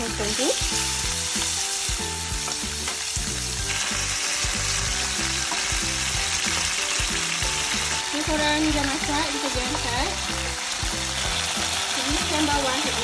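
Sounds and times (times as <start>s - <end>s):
squid sizzling in oil: 0.0s - 13.0s.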